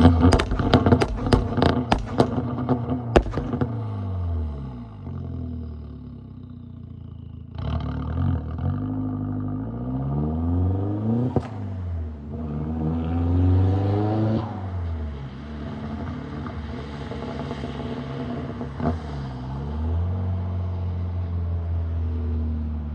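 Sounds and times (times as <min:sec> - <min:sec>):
sharp exhaust crack: 0:00.0 - 0:04.2.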